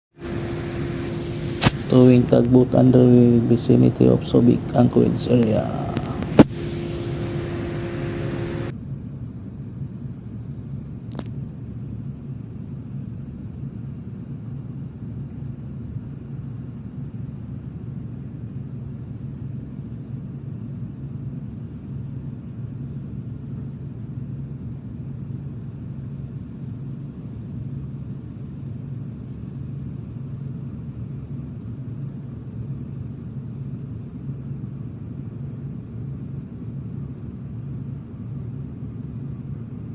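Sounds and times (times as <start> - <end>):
hiss with steady tones: 0.2 - 8.7
low engine rumble: 0.2 - 8.7
sharp click: 1.5 - 1.9, 11.1 - 11.4.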